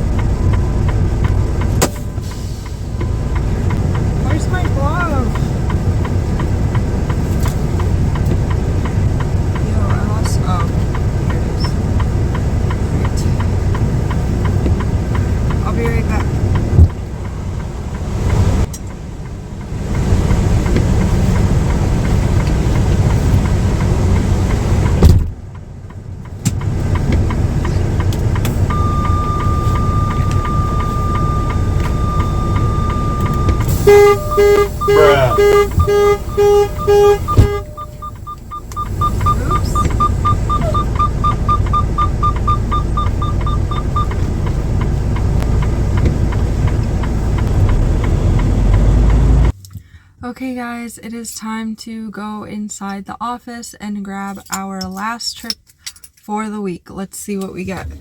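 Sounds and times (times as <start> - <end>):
faint regular ticking: 0.0 - 24.6, 25.5 - 48.1
truck engine rumbling: 0.0 - 49.8
thin high tone: 28.7 - 41.4
rapid high beeps: 28.7 - 44.3.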